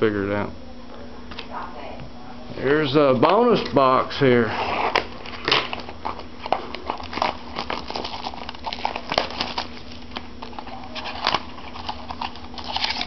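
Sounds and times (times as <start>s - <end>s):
steady low hum: 0.0s - 13.0s
wrappers crinkling: 4.7s - 13.0s.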